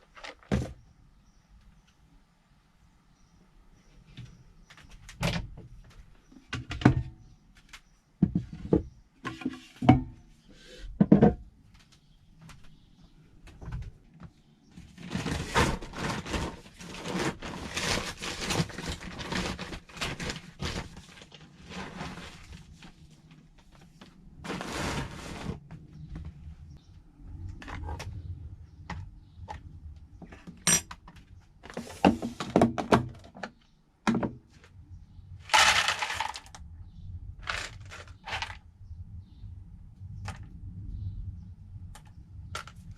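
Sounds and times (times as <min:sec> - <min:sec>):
scratchy rustling and scraping: 0:14.7 - 0:25.8, 0:35.5 - 0:36.5, 0:37.4 - 0:38.6.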